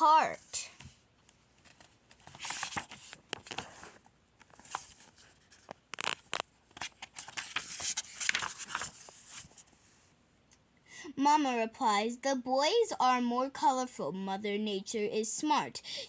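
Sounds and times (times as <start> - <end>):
paper rustling and crinkling: 0.7 - 10.0.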